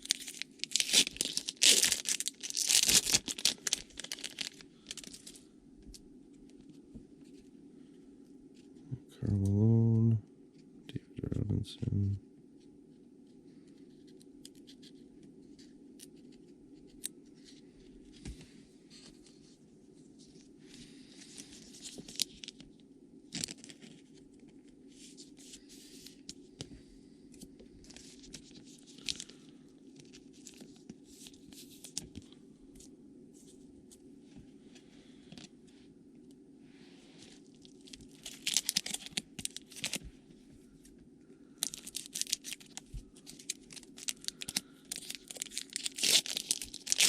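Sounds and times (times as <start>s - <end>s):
card packs tearing: 0.0s - 5.2s, 38.2s - 40.0s, 41.6s - 47.0s
steady low hum: 0.0s - 47.0s.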